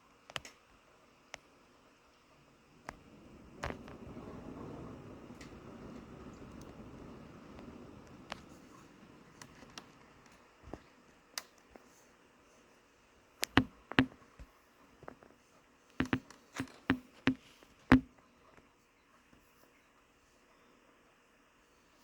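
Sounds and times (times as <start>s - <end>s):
sharp taps and knocks: 13.4s - 14.2s, 16.0s - 18.1s.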